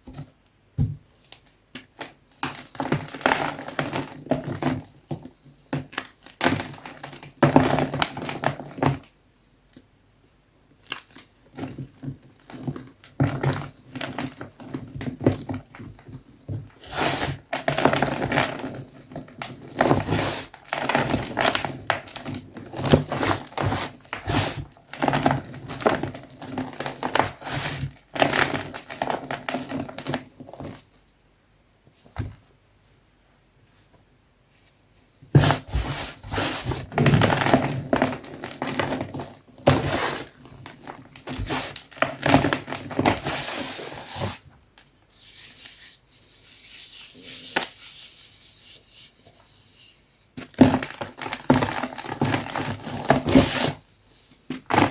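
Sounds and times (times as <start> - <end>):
chalk being crushed: 16.8 - 17.4, 19.8 - 22.2, 22.9 - 24.6.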